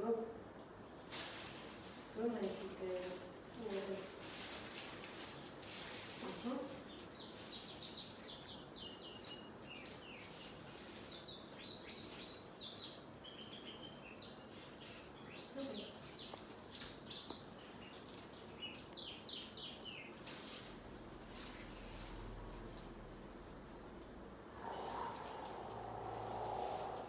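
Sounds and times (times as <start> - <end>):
small birds chirping: 6.3 - 20.3, 24.5 - 27.0.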